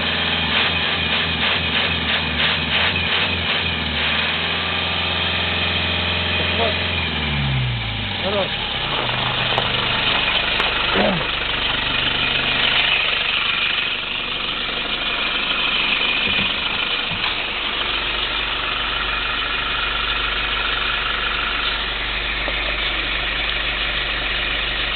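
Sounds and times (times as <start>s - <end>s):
diesel engine idling: 0.0s - 24.9s.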